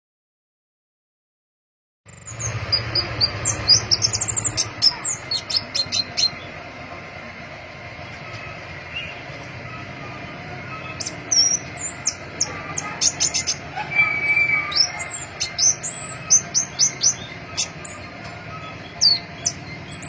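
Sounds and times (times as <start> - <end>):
bird high thin chirps: 10.7 - 20.0.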